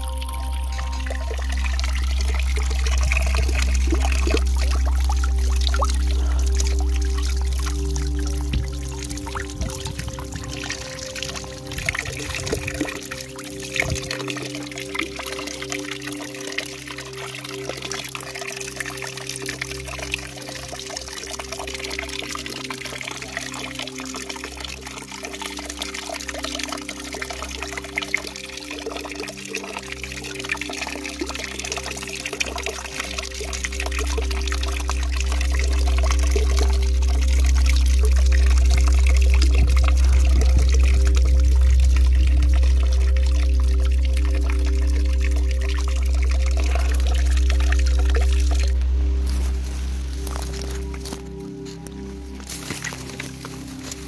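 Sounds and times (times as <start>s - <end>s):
deep low rumble: 0.0s - 13.0s, 33.4s - 54.0s
fountain water splashing: 0.0s - 54.0s.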